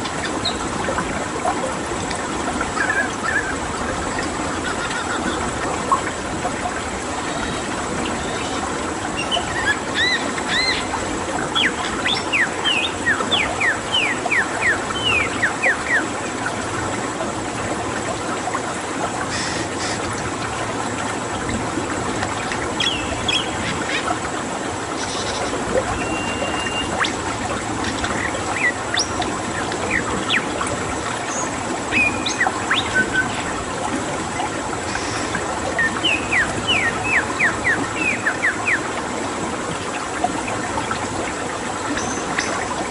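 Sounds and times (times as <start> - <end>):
running water: 0.0 - 42.9
birds whistling: 25.1 - 27.1, 31.9 - 33.4, 35.8 - 38.8.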